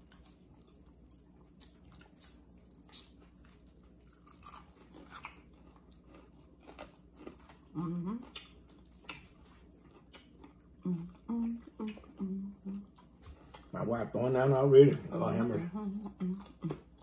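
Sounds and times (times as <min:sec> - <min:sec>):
people chewing crunchy food: 0:00.0 - 0:17.0.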